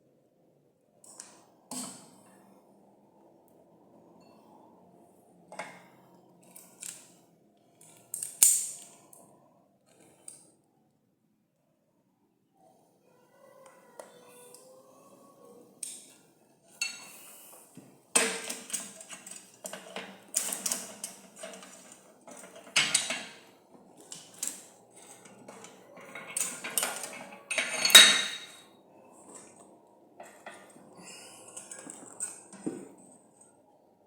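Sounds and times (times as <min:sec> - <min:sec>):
metal wire clanking and scraping: 0:18.2 - 0:28.6, 0:30.2 - 0:30.9.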